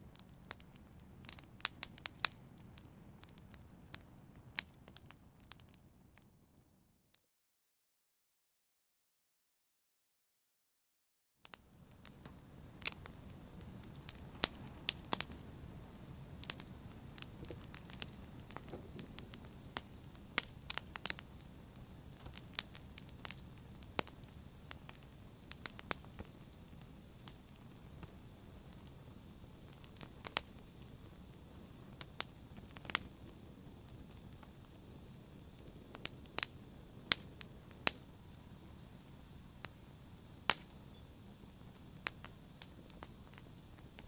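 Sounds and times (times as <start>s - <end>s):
fire crackling and popping: 0.0s - 6.6s, 11.4s - 44.0s
faint steady hiss: 0.0s - 7.1s, 11.4s - 44.0s.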